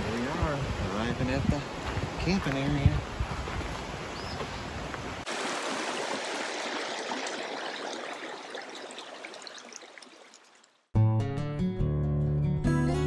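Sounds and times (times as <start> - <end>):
creek rippling over stones: 3.5 - 10.9.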